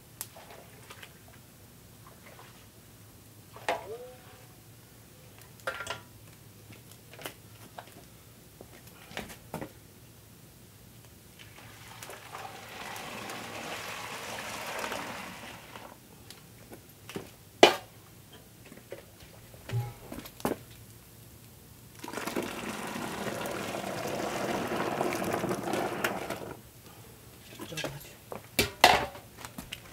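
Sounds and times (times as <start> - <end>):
liquid pouring: 11.5 - 15.9, 22.0 - 26.5
sharp loud knock: 19.7 - 20.2.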